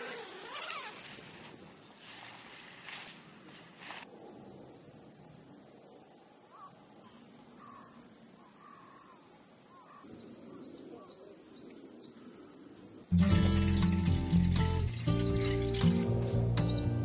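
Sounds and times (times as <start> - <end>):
faint bird calls: 4.2 - 12.8.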